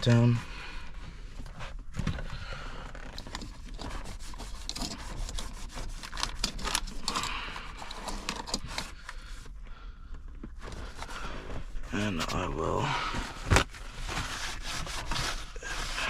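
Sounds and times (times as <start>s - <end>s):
paper towel wiping surface: 13.3s - 16.0s.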